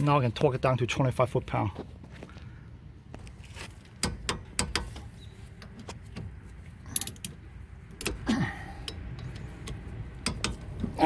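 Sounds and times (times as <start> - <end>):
torque wrench clicking: 6.9 - 7.4, 8.8 - 10.7.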